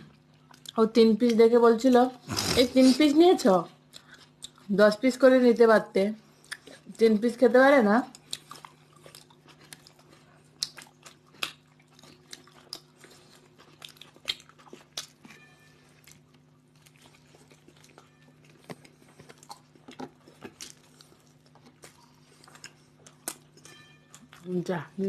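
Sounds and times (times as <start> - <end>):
faint hum: 0.0 - 25.0
crunching while chewing: 2.2 - 3.0, 3.8 - 4.7, 8.1 - 24.5.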